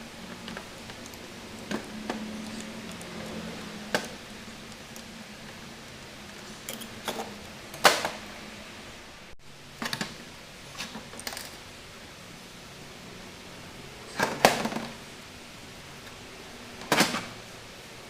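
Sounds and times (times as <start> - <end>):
metal parts and tools clicking: 0.3 - 5.1, 6.3 - 7.9.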